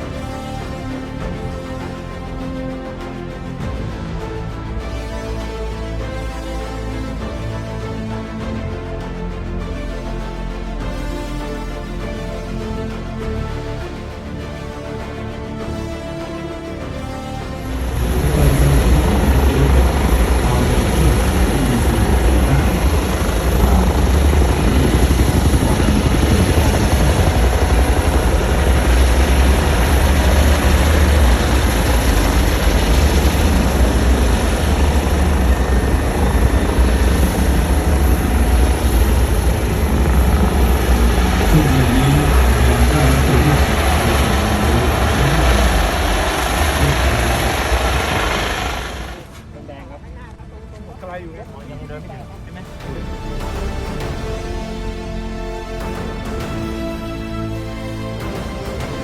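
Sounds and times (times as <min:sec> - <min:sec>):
helicopter rotor and engines: 0:17.5 - 0:49.4.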